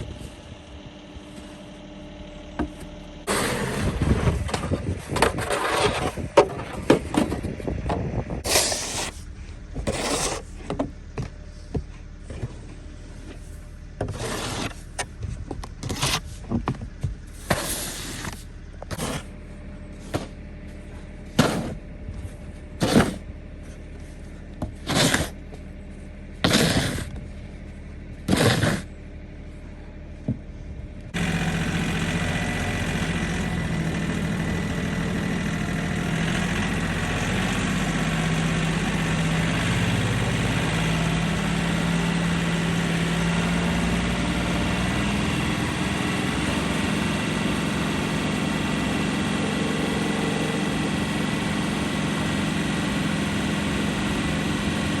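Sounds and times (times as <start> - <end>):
machine engine running: 0.0 - 55.0
short scraping bursts: 8.4 - 9.3, 9.9 - 10.6, 14.1 - 14.8, 17.4 - 19.3, 24.8 - 25.4, 26.4 - 27.1, 28.3 - 28.9.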